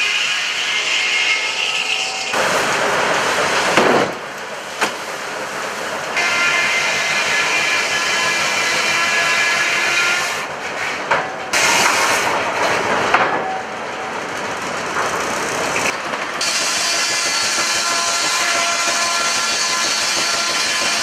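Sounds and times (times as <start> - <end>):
heavy wood-processing machinery: 0.0 - 21.0.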